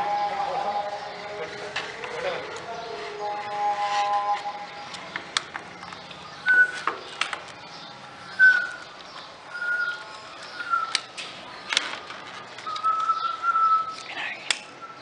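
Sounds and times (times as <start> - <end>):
whistled bird notes: 6.2 - 7.1, 7.7 - 8.9, 9.5 - 11.1, 12.6 - 15.0.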